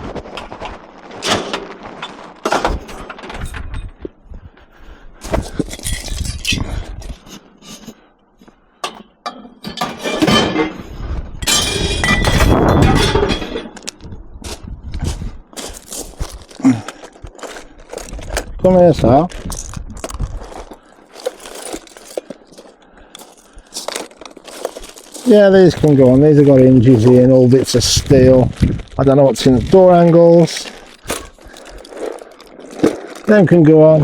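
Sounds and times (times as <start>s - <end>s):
metal rattling clatter: 5.3s - 7.0s, 8.8s - 13.9s
scrap metal clanking: 8.8s - 13.9s.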